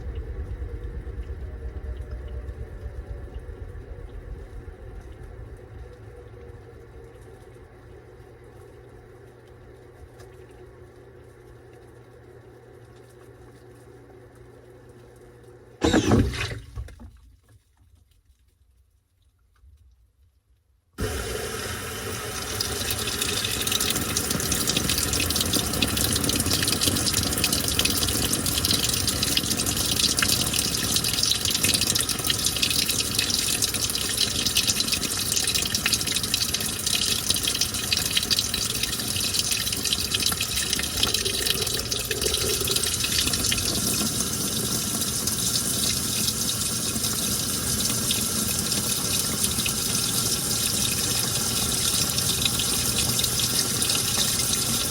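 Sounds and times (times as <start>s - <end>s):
water pouring into washing machine: 0.0s - 17.2s, 21.0s - 54.9s.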